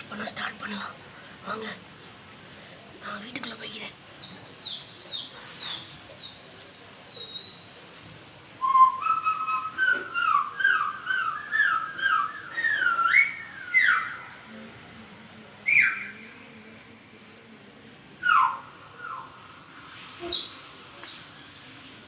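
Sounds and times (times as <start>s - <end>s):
warbling whistle tones: 8.6s - 14.4s.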